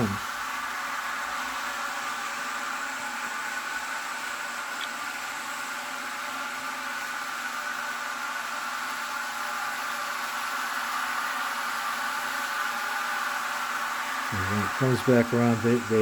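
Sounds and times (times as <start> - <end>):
hissy whir from small speaker: 0.0 - 16.0
model train running on track: 9.8 - 16.0.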